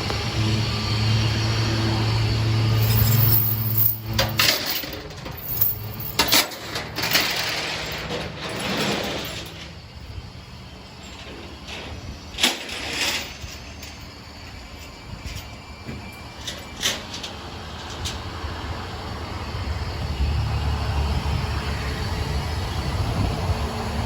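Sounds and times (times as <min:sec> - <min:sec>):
vehicle engine running: 0:00.0 - 0:06.3.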